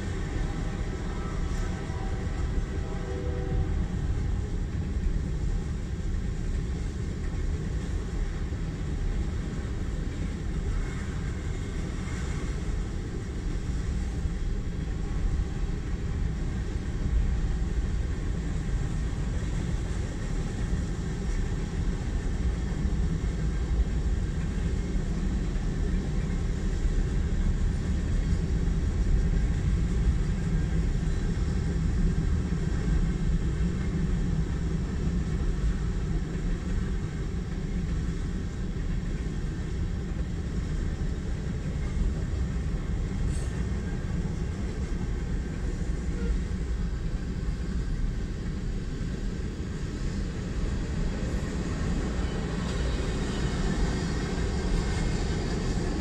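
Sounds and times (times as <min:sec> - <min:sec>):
freight train cars rumbling: 0:00.0 - 0:56.0.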